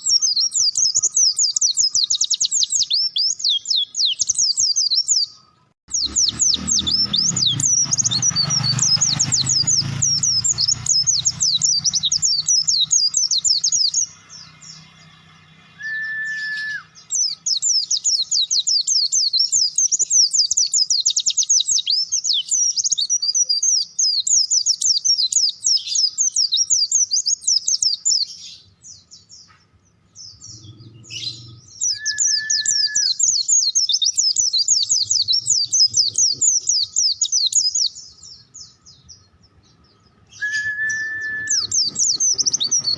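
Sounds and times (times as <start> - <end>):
songbird chattering warble: 5.9 - 15.1, 30.3 - 38.0, 40.9 - 42.9.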